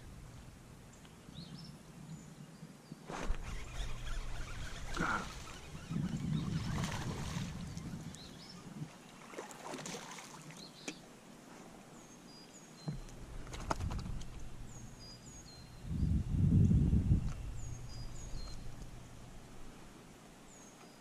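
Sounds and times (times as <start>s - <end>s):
water and movement noise: 3.0s - 15.4s.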